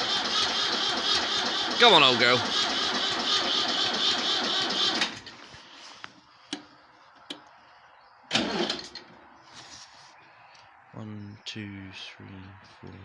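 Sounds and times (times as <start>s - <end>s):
tractor starter cranking: 0.0s - 5.4s, 8.3s - 9.2s.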